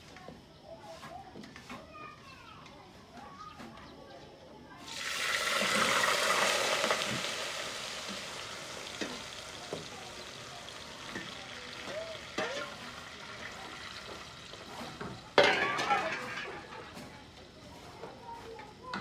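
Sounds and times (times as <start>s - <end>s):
noodles sizzling in hot oil: 4.8s - 18.0s
metal skimmer clinking: 15.4s - 17.0s.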